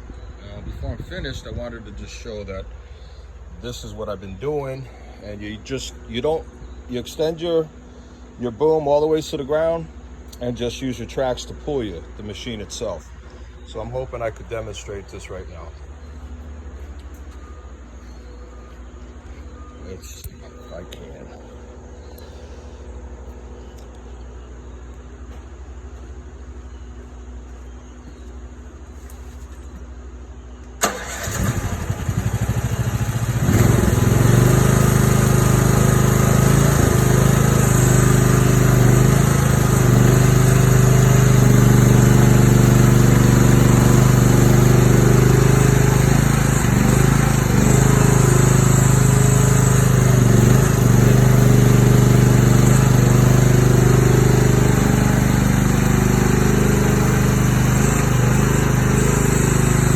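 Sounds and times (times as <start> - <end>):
diesel engine cranking and running: 30.6 - 59.9
engine starter click: 30.7 - 33.9.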